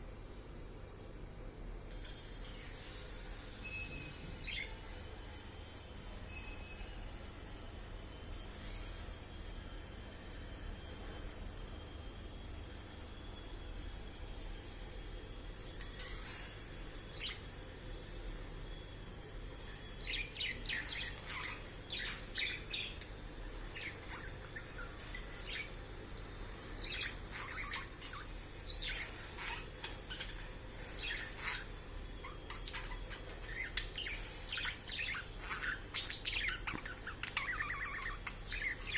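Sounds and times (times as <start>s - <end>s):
budgerigar chirping and warbling: 26.8s - 30.3s, 31.0s - 38.9s.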